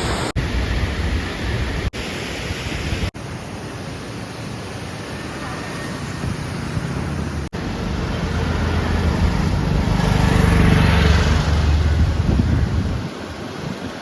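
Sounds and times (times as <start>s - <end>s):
wind: 0.0s - 14.0s
motor engine passing: 6.2s - 12.7s.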